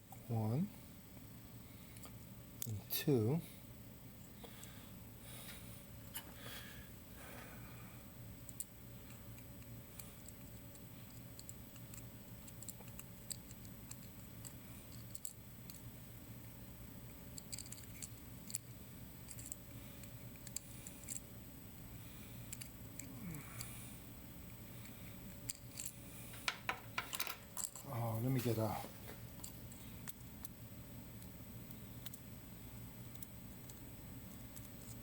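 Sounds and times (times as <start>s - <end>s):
steady low hum: 0.0s - 35.0s
small metal parts clicking: 10.2s - 15.9s, 17.3s - 21.2s, 22.5s - 23.7s, 25.3s - 27.9s.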